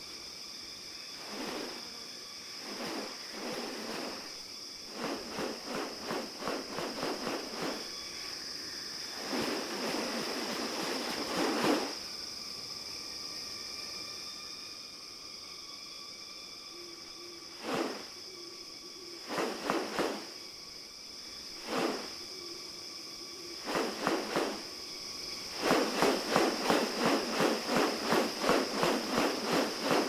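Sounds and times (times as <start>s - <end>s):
insects droning: 0.0s - 30.0s
rapid pulses: 1.2s - 2.0s, 2.6s - 8.0s, 9.1s - 12.0s, 17.6s - 18.2s, 19.2s - 20.4s, 21.6s - 22.2s, 23.6s - 24.7s, 25.4s - 30.0s
rushing sound: 17.6s - 18.1s.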